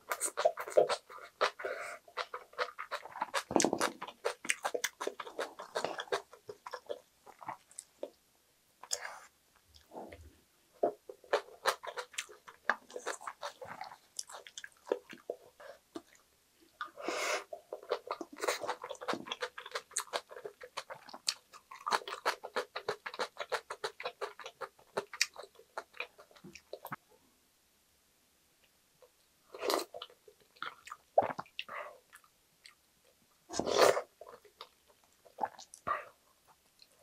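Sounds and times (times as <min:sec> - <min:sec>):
crunchy chewing: 0:00.0 - 0:08.2, 0:11.1 - 0:16.2, 0:17.8 - 0:26.9.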